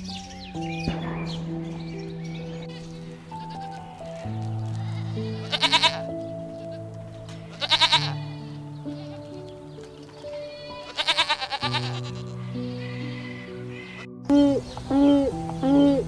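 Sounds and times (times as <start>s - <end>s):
soft background music: 0.0s - 16.0s
goat bleating: 2.6s - 3.9s, 4.6s - 9.4s, 10.4s - 14.1s.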